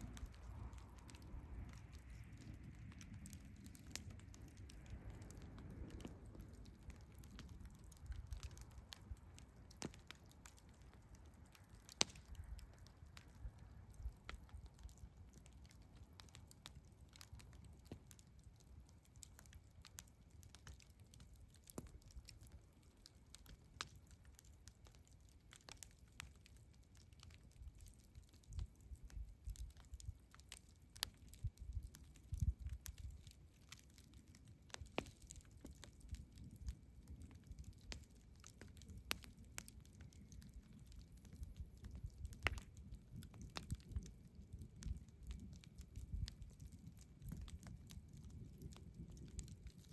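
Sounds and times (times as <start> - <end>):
campfire crackling and popping: 0.0 - 49.9
low fire rumble: 0.0 - 49.9.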